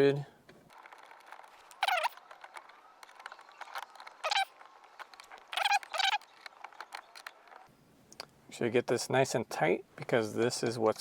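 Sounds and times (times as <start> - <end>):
high-pitched cries: 1.8 - 2.2, 4.2 - 4.5, 5.5 - 6.3.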